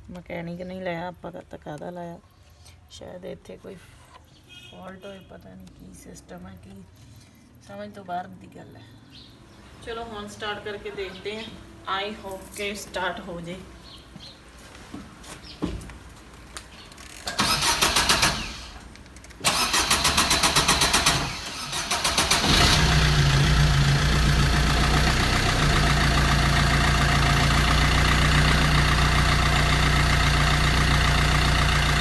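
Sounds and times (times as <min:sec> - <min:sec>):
diesel engine cranking: 0:16.9 - 0:32.0
engine idling: 0:19.5 - 0:32.0.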